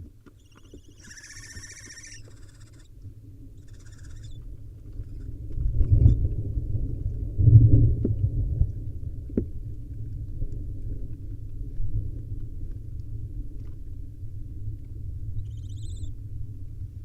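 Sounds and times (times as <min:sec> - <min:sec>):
faint hissing owl call: 0:00.4 - 0:02.9, 0:03.6 - 0:04.4, 0:05.0 - 0:05.3, 0:15.4 - 0:16.1
owls thumping in wooden nest box: 0:00.4 - 0:02.9.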